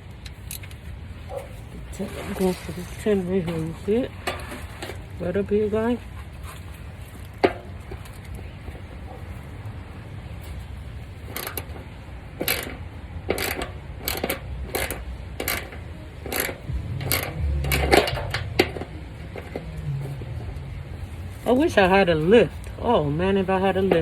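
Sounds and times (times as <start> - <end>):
wrench clicking on bolt: 11.3 - 11.8, 12.4 - 18.4.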